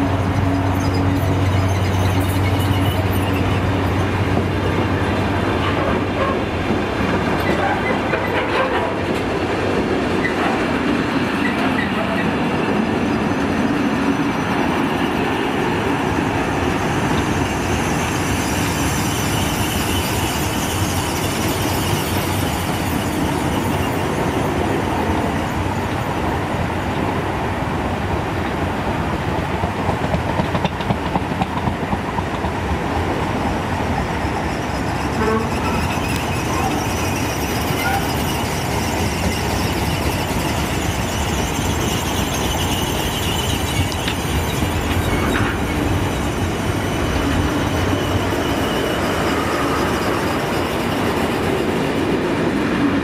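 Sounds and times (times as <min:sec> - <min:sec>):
high wheel squeal: 0:00.0 - 0:06.6, 0:10.1 - 0:27.0, 0:33.3 - 0:52.5
train wheels rumbling and clicking: 0:00.0 - 0:53.0.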